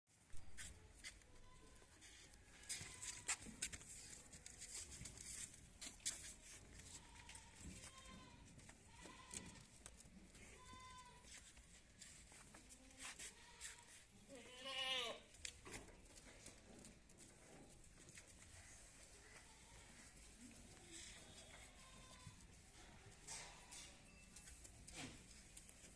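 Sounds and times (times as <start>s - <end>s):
goats bleating: 7.0s - 9.8s, 13.3s - 15.3s.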